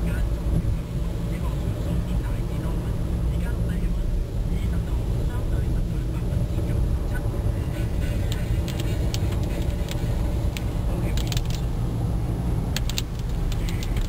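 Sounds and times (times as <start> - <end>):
car rumble inside cabin: 0.0 - 14.0
raindrops ticking on windscreen: 8.0 - 14.0.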